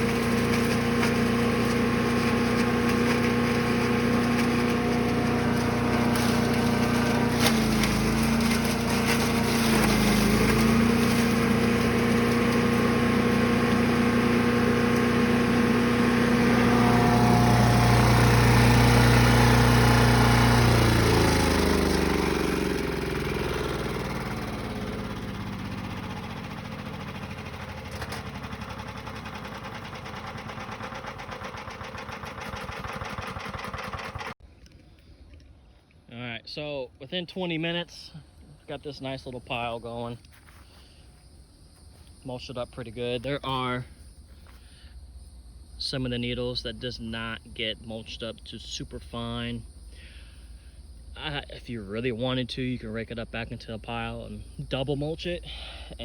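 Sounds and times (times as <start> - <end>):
chipper engine running: 0.0 - 34.4, 42.1 - 56.0
rotor clatter coasting: 0.0 - 34.4.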